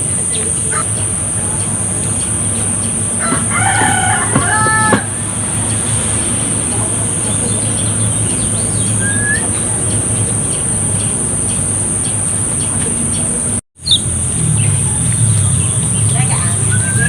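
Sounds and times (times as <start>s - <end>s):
bird high chirps: 6.8s - 14.8s, 15.4s - 17.0s.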